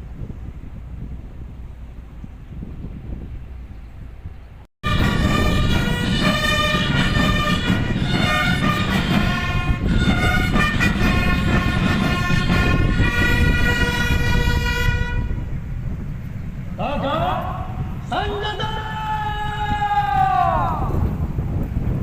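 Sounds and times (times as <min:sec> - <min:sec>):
wind buffeting microphone: 0:00.0 - 0:22.0
brass band playing slow chords: 0:04.8 - 0:15.4.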